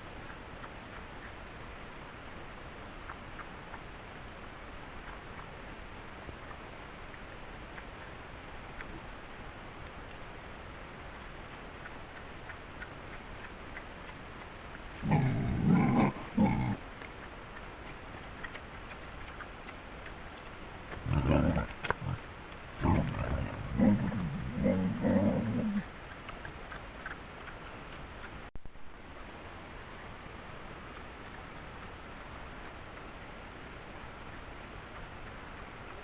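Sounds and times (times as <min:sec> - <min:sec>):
microphone hiss: 0:00.0 - 0:36.0
large animal calling: 0:15.0 - 0:16.8, 0:22.8 - 0:25.9.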